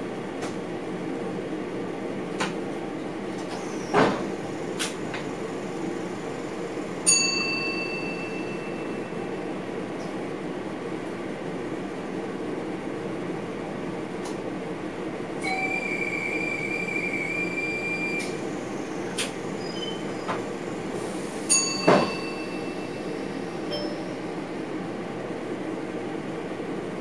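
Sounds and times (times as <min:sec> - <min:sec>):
train rumbling: 0:00.0 - 0:27.0
high wheel squeal: 0:15.4 - 0:20.5.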